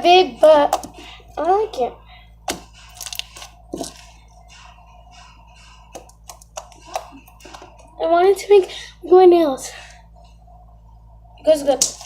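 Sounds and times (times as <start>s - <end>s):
slime squishing: 2.4s - 7.9s.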